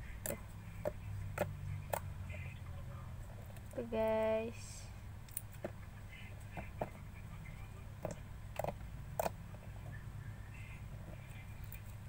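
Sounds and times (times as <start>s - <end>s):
sticky clicks and pops: 8.0s - 9.4s.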